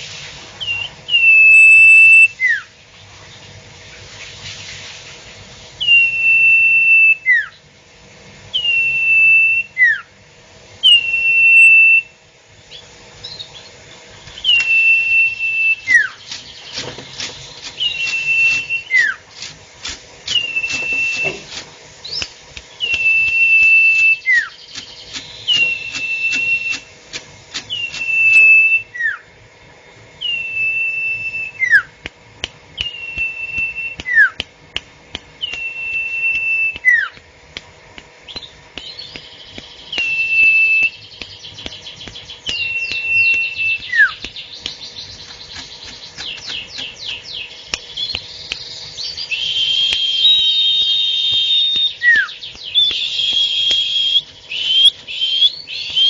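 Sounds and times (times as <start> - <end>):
bird whistling call: 0.6 - 2.7, 5.8 - 7.6, 8.5 - 10.1, 10.8 - 12.1, 14.3 - 19.2, 20.3 - 26.9, 27.6 - 29.3, 30.2 - 31.9, 32.8 - 34.4, 35.4 - 37.2, 38.3 - 56.0
sharp clicks: 15.9 - 28.6, 32.0 - 48.7, 49.9 - 56.0.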